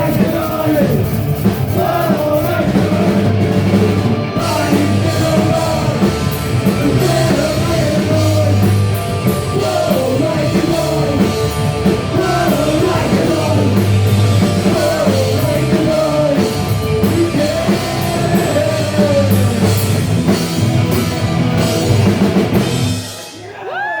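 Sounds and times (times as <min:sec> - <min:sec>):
person singing lead vocal: 0:00.0 - 0:03.4, 0:04.2 - 0:20.0
distorted electric guitars: 0:00.0 - 0:23.4
drum kit: 0:00.0 - 0:23.6
bass guitar: 0:00.0 - 0:23.7.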